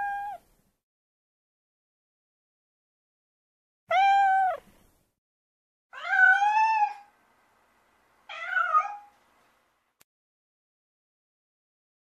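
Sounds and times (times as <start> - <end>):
cat meowing: 0.0 - 0.4, 3.9 - 4.7, 5.9 - 7.1, 8.3 - 9.1.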